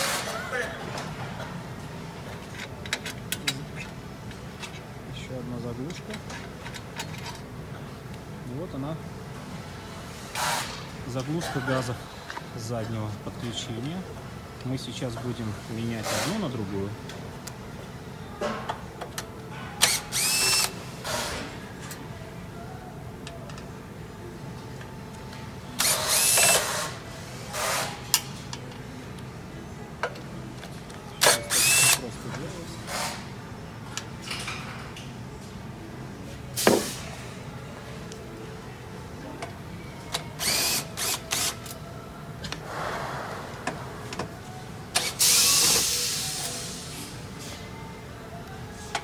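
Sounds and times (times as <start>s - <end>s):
cordless drill whirring: 19.8s - 21.3s, 25.8s - 26.9s, 31.2s - 32.0s, 40.4s - 41.6s.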